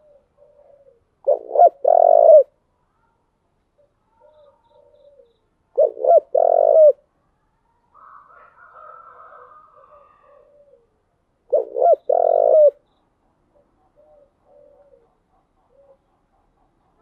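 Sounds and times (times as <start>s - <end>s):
dove cooing: 0.0s - 2.6s, 3.8s - 7.0s, 8.2s - 12.8s, 13.5s - 16.1s.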